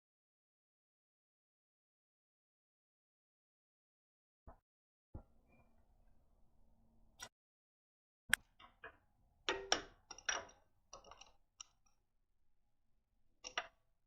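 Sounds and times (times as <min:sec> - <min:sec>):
small hard parts clicking: 0:08.6 - 0:12.0, 0:13.4 - 0:13.8.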